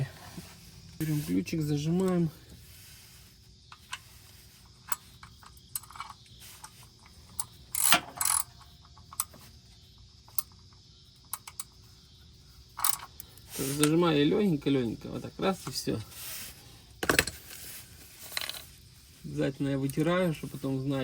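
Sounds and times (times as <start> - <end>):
wrench clicking on metal: 7.4 - 8.6.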